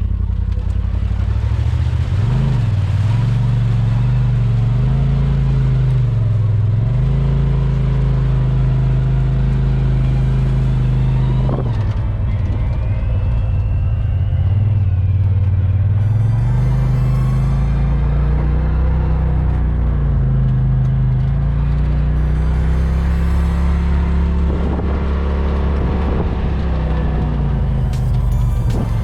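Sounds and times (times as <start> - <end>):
off-road vehicle engine revving: 0.0 - 29.0.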